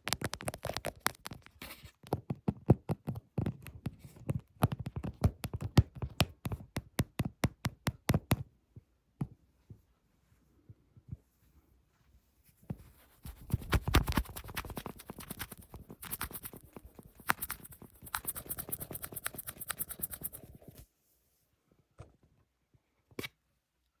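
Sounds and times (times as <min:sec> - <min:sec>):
quick scratching strokes: 0:12.8 - 0:20.9.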